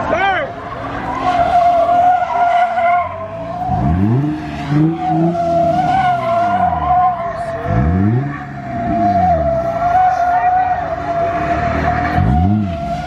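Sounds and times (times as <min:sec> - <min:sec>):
car engine revving: 0:00.0 - 0:13.0
car tires squealing: 0:00.0 - 0:13.0.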